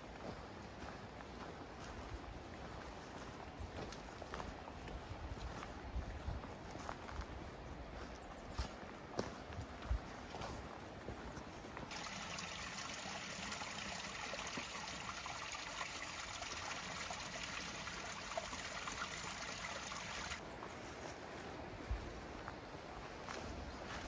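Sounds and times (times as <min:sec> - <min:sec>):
water trickling: 0:11.9 - 0:20.4.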